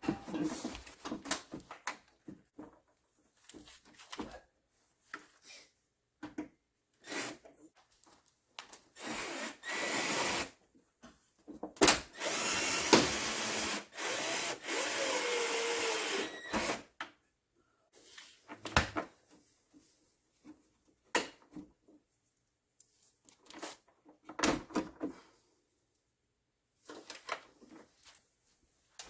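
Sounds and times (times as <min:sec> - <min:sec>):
cordless drill driving screws: 0:09.0 - 0:10.5, 0:12.1 - 0:16.9.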